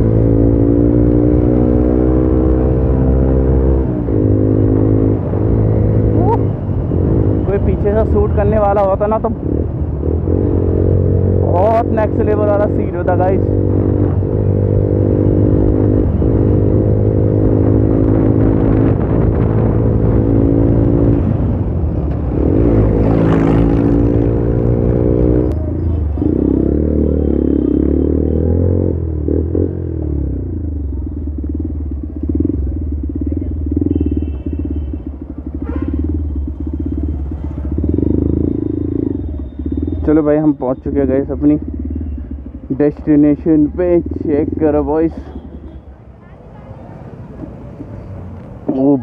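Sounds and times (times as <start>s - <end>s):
motorcycle engine running: 30.6s - 40.3s.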